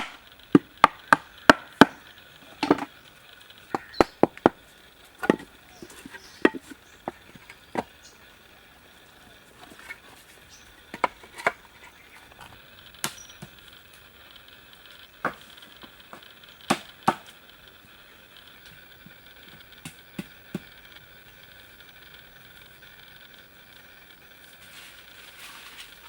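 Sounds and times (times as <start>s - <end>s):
tool knocking on wood: 2.6s - 2.9s, 5.2s - 7.9s.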